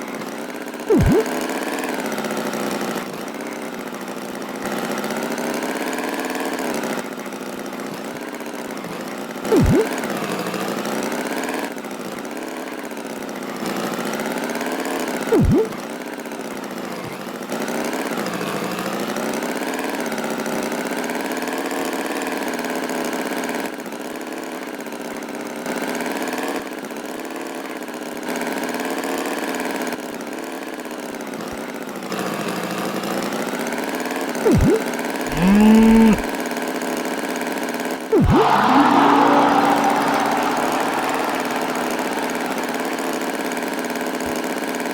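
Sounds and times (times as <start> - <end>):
cartoon tractor engine: 0.9 - 1.3, 9.5 - 10.0, 15.3 - 15.8, 34.5 - 36.3, 38.1 - 43.8
pitched note bending downward: 0.9 - 1.3, 9.5 - 9.9, 15.4 - 15.8, 34.5 - 36.2, 38.1 - 43.4
short blips falling in pitch: 0.9 - 1.3, 9.5 - 9.9, 15.3 - 15.8, 34.5 - 36.3, 38.1 - 43.0.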